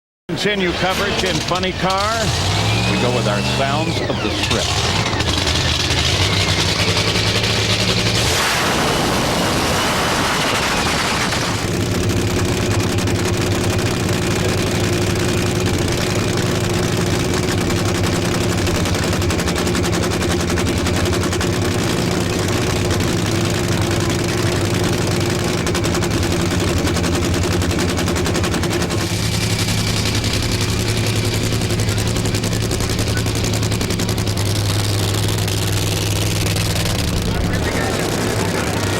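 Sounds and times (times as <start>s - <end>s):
loud rush of noise: 0.4s - 14.0s, 22.2s - 38.9s
race car engine idling crackle: 0.8s - 38.9s.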